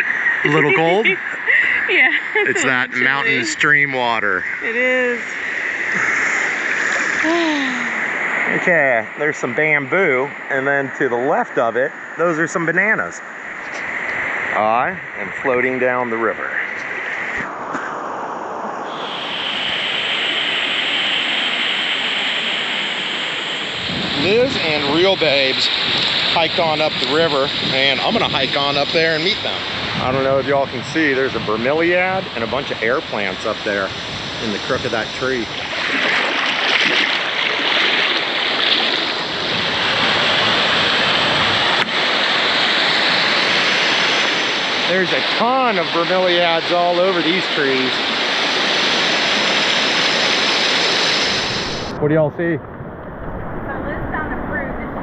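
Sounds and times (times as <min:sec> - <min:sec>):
rushing river water: 0:35.6 - 0:46.6
river water rushing: 0:35.7 - 0:39.2.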